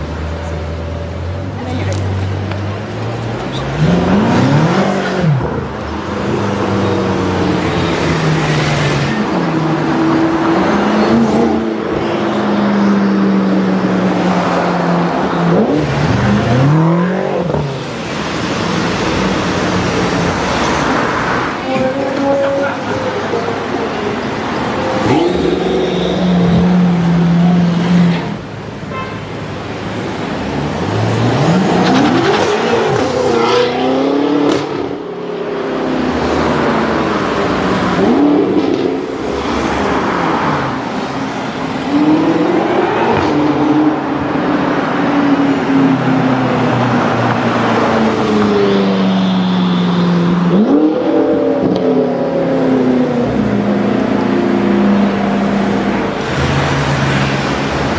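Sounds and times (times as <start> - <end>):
car engine revving: 13.6 - 28.7, 29.8 - 44.9.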